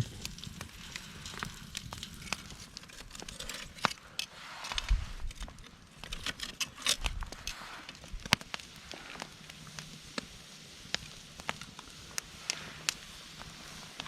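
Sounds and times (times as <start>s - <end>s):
wood fire crackling and popping: 0.0s - 14.0s
faint hiss: 7.3s - 14.0s.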